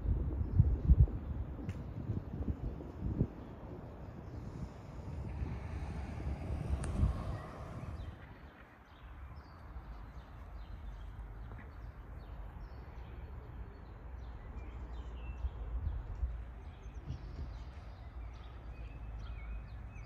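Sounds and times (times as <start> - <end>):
low background rumble: 0.0 - 8.3
small birds chirping: 3.4 - 20.0.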